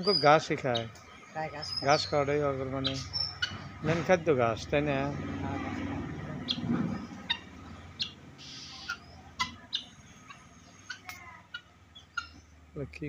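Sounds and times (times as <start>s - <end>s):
bird chirps: 0.0s - 4.0s, 6.4s - 12.6s.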